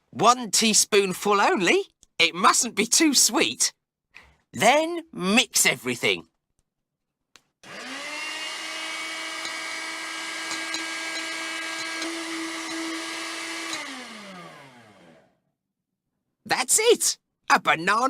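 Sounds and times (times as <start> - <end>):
electric blender motor whining: 7.6 - 15.4.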